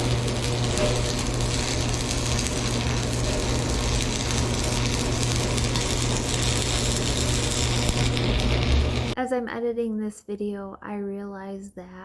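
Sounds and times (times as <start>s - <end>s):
low machine hum: 0.0s - 9.2s.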